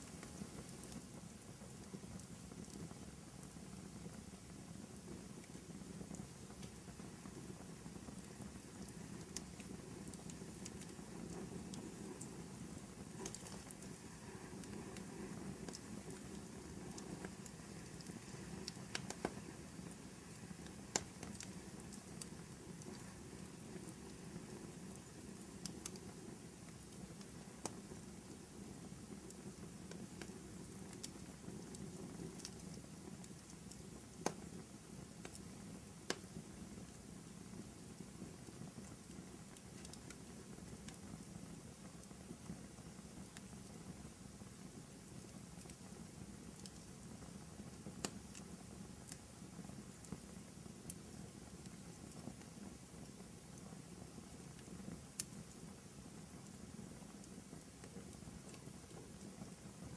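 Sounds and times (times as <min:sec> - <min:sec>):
fire crackling and popping: 0:00.0 - 0:59.9
fire low rush: 0:07.6 - 0:25.8.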